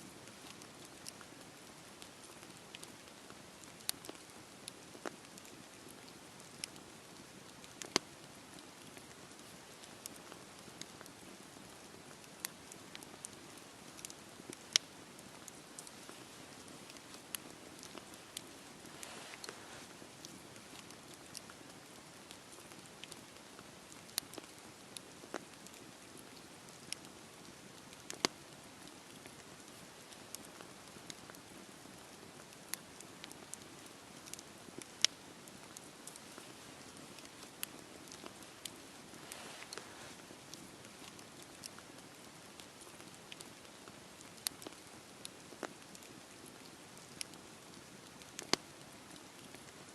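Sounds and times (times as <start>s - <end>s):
falling rain hiss: 0.0s - 49.9s
campfire pops and crackles: 0.2s - 49.6s
rain hissing: 15.3s - 21.2s, 36.0s - 40.7s.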